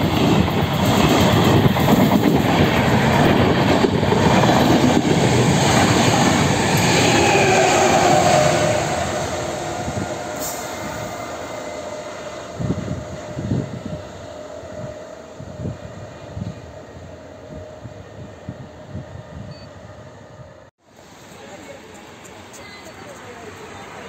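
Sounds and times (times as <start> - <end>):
train wheels rushing on rails: 0.0 - 19.3.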